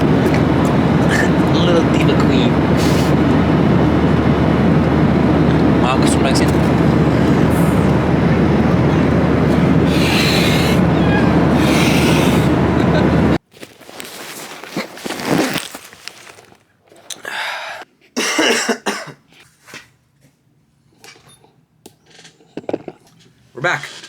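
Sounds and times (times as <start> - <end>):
airliner cabin drone: 0.0 - 13.4
person coughing: 18.2 - 19.2.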